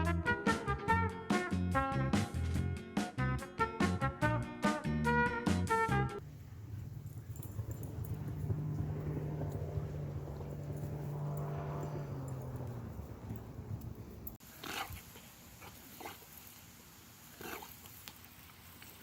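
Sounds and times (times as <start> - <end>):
low hum: 6.2 - 14.4.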